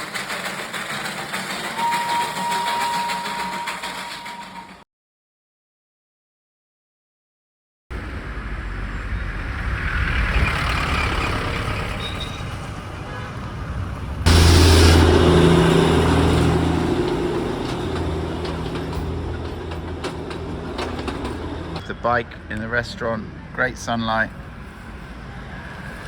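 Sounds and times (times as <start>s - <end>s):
vehicle engine and road noise: 7.9s - 26.0s.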